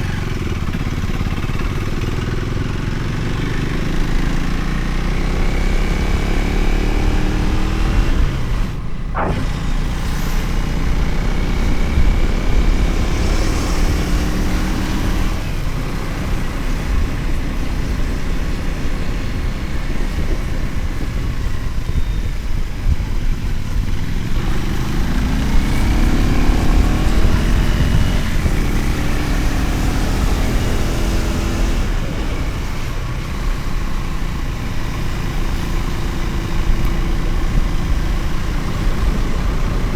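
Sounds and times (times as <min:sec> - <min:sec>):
motorcycle engine running: 0:00.0 - 0:39.9
wind and road noise: 0:00.0 - 0:39.9
brief sharp sound: 0:08.7 - 0:11.8.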